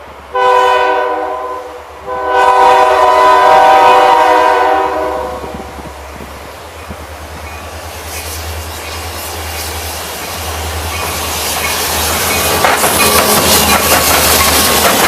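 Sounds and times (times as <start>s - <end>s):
diesel locomotive engine rumble: 0.0s - 15.0s
train wheels clattering on rails: 5.4s - 15.0s.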